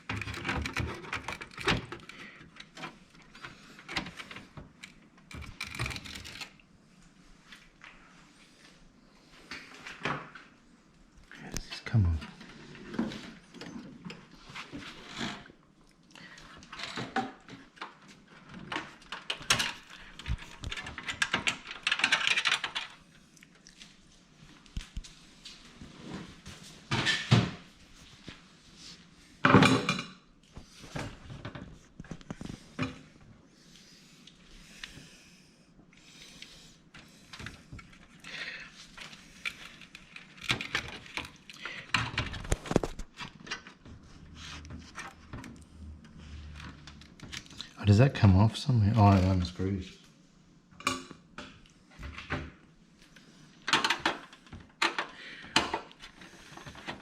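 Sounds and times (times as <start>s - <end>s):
computer parts clicking and knocking: 0.0s - 6.6s, 18.5s - 23.0s, 39.0s - 43.8s, 53.6s - 56.0s.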